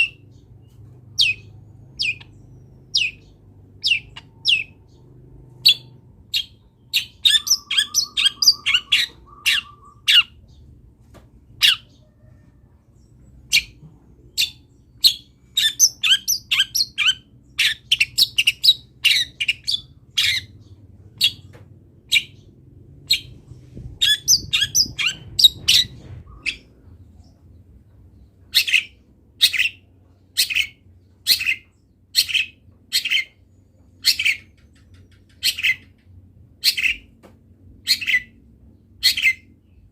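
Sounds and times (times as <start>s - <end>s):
bird rapid chattering: 5.6s - 10.4s, 14.4s - 20.6s, 24.0s - 26.7s
shrike calling: 5.6s - 10.4s.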